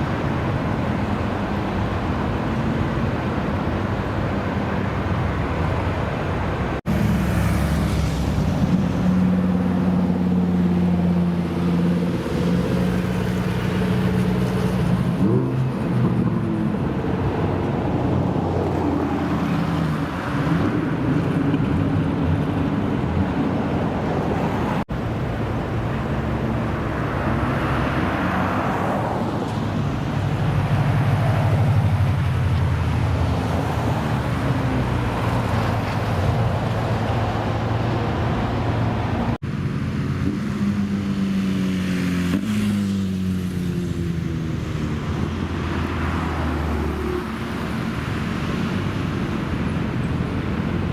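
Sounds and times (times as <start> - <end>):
car engines revving: 0.0 - 50.9.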